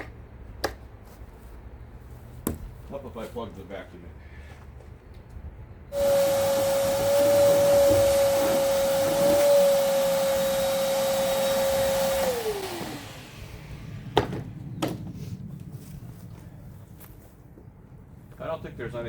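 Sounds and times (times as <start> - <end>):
vacuum cleaner running: 5.9 - 14.2
vacuum motor winding down: 5.9 - 14.2.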